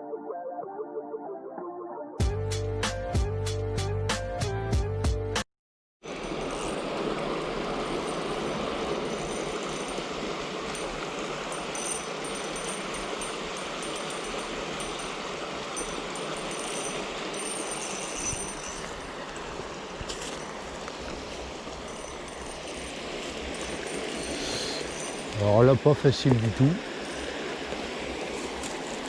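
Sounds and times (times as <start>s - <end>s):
river water rushing: 6.1s - 29.0s.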